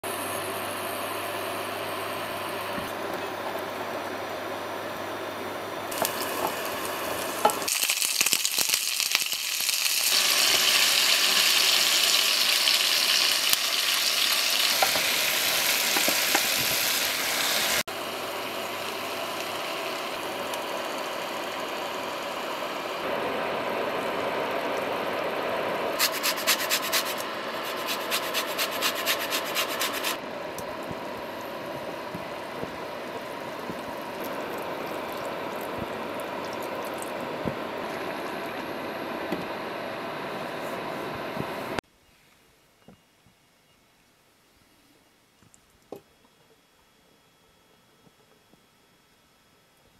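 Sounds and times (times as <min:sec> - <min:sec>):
vegetables sizzling in hot oil: 0:05.9 - 0:24.6
wooden spatula scraping pan: 0:26.0 - 0:30.2.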